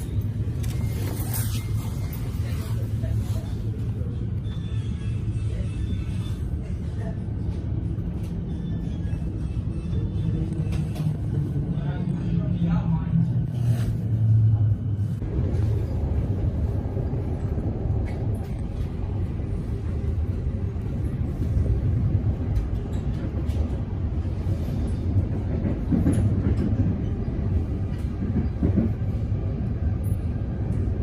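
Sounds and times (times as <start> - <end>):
electric train rumbling: 0.0 - 31.0.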